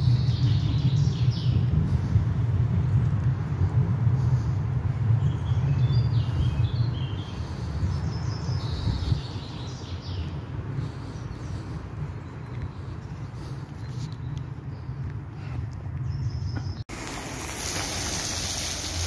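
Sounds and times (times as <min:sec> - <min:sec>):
small birds chirping: 0:00.0 - 0:01.8, 0:04.2 - 0:16.9
steady low rumble: 0:00.0 - 0:16.8.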